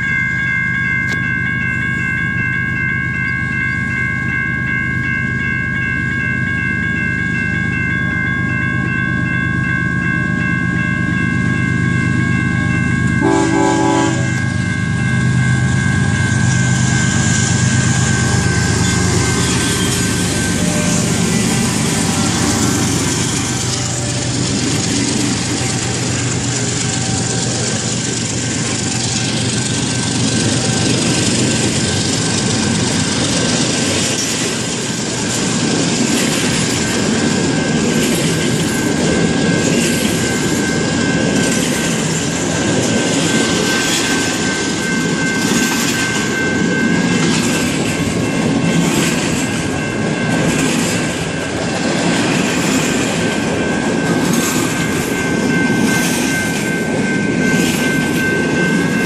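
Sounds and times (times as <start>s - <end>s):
high-pitched tone: 0.0s - 32.8s
diesel locomotive engines: 0.0s - 59.0s
freight cars rumbling and clattering: 16.1s - 59.0s.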